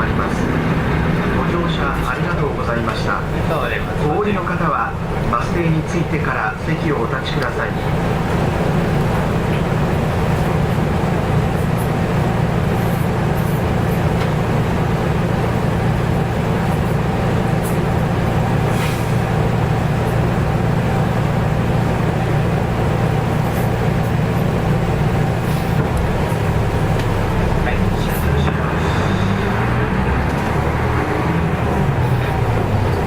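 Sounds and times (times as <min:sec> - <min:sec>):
bus diesel engine drone: 0:00.0 - 0:33.0
road noise: 0:00.0 - 0:33.0.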